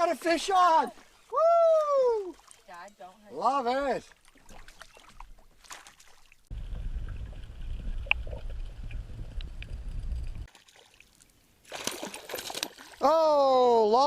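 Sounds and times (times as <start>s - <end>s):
wind buffeting microphone: 6.5s - 10.5s
fish splashing at water surface: 10.4s - 13.0s.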